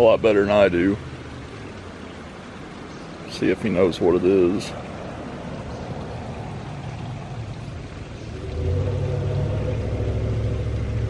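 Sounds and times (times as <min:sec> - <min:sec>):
running water: 0:00.0 - 0:11.0
low engine drone: 0:05.7 - 0:11.0.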